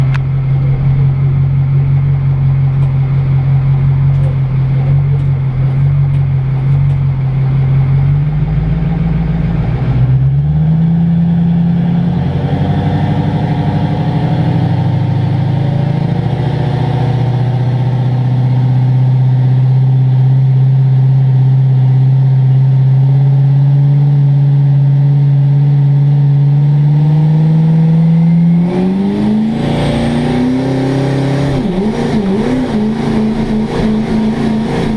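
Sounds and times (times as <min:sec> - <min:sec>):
diesel truck engine idling: 0:00.0 - 0:10.4.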